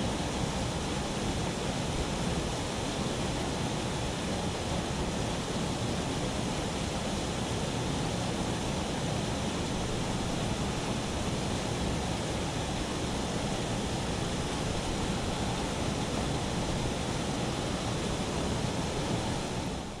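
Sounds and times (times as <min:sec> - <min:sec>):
rushing water: 0:00.0 - 0:20.0.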